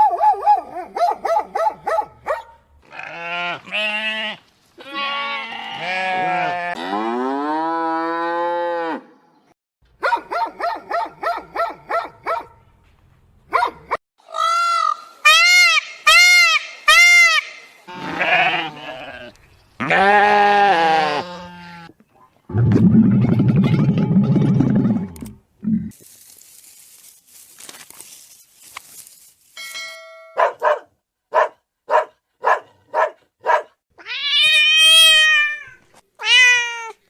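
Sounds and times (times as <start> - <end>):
farm animals bleating: 2.8 - 9.0, 17.9 - 22.0.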